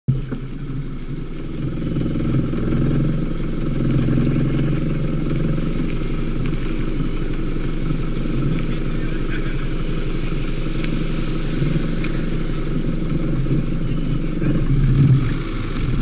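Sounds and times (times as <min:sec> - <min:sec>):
car engine idling: 0:00.1 - 0:16.0.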